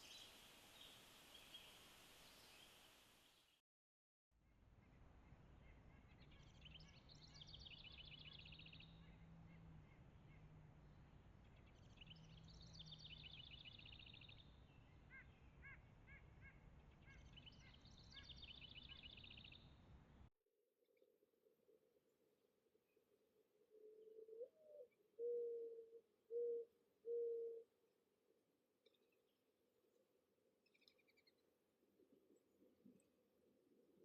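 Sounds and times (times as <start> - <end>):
songbird singing with trill: 6.4 - 9.0, 11.8 - 14.5, 17.2 - 19.6.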